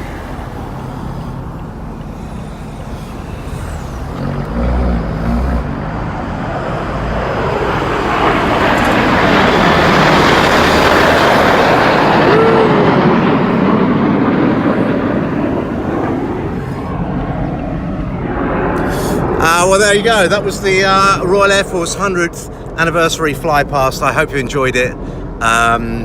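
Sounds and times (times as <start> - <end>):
jets flying over: 0.0 - 26.0.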